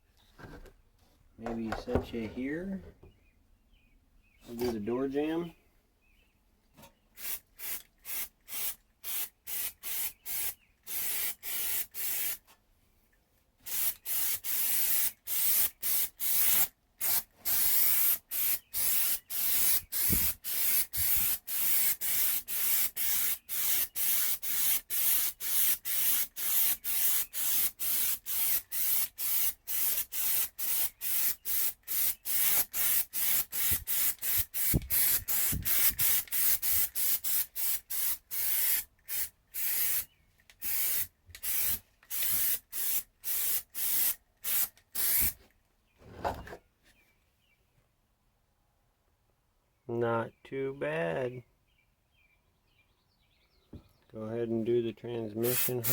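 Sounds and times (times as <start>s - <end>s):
spray coating hissing bursts: 7.2s - 12.4s, 13.7s - 45.4s, 55.4s - 55.9s.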